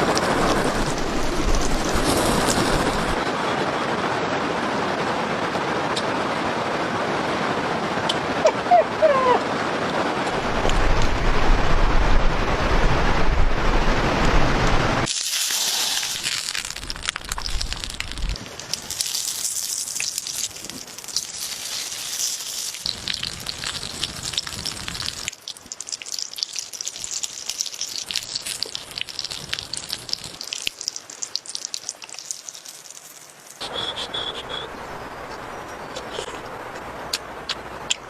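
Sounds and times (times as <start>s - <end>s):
food sizzling on hot stone: 15.0s - 33.6s.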